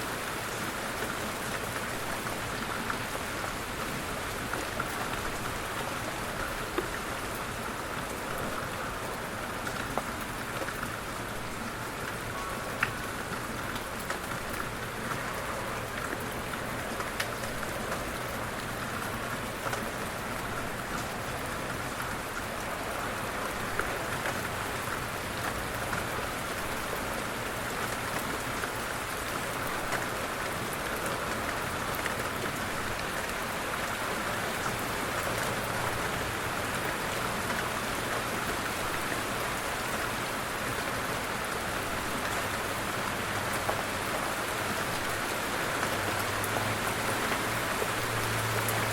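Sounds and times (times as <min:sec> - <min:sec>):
individual raindrop ticks: 0:12.0 - 0:22.8.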